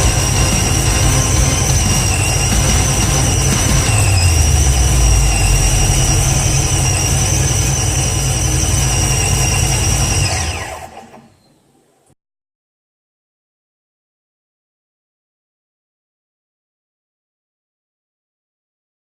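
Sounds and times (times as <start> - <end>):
car engine running: 0.0 - 10.7
supercharger whine: 0.0 - 11.2.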